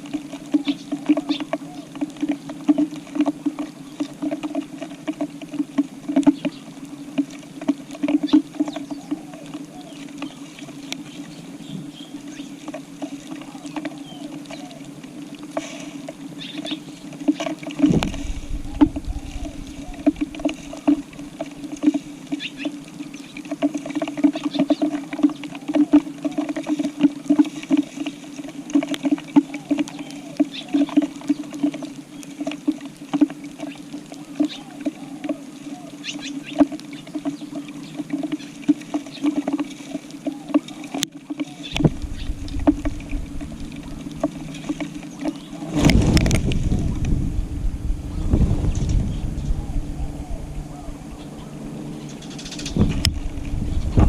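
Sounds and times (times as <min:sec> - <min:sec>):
steady low hum: 0:00.0 - 0:38.9, 0:41.6 - 0:54.0
low rumble: 0:17.9 - 0:20.4, 0:41.8 - 0:52.1, 0:52.7 - 0:54.0.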